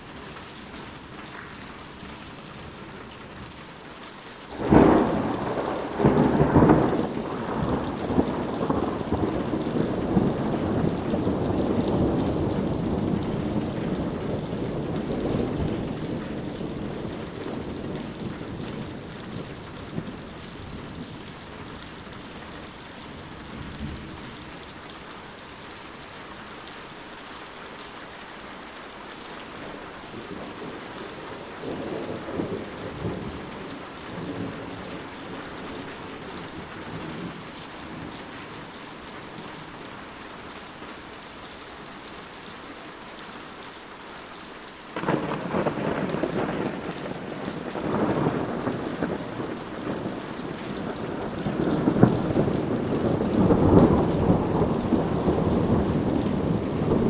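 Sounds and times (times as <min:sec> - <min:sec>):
steady rain: 0:00.0 - 0:57.0
thunder rumbling: 0:04.5 - 0:21.2, 0:29.6 - 0:39.7, 0:45.0 - 0:57.0.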